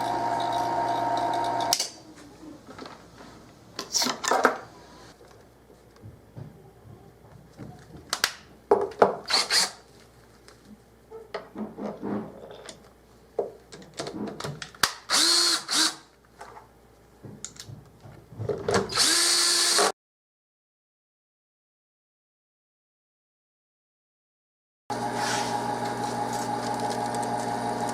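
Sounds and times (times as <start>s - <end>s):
small power tool motor: 9.3s - 9.8s, 15.1s - 16.0s, 18.9s - 19.9s
knocks and clatter of handling: 16.4s - 18.9s.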